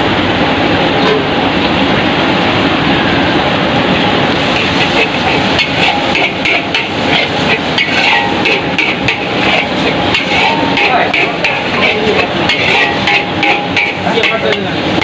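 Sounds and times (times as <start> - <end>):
metal spatula scraping a wok: 4.4 - 15.0.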